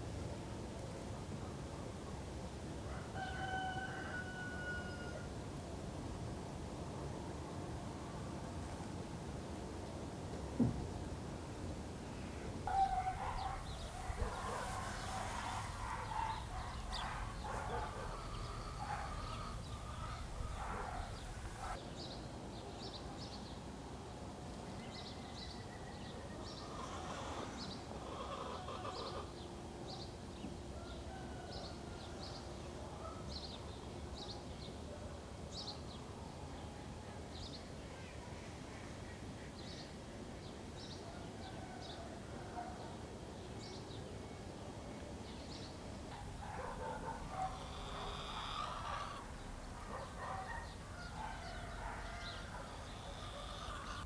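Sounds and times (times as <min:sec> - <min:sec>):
low background hiss: 0:05.0 - 0:22.0, 0:44.3 - 0:54.0
bird calls: 0:12.7 - 0:21.8, 0:46.2 - 0:54.0
hens clucking: 0:12.7 - 0:21.8, 0:46.2 - 0:54.0
small bird chirping: 0:12.7 - 0:21.8.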